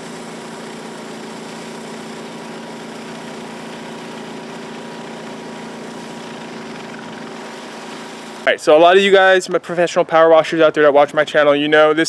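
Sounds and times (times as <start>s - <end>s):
pressure washer engine humming: 0.0s - 8.8s.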